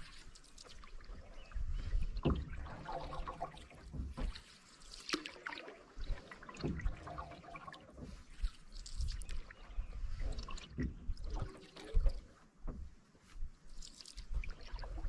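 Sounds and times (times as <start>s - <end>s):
paddle strokes in water: 0.0s - 15.0s.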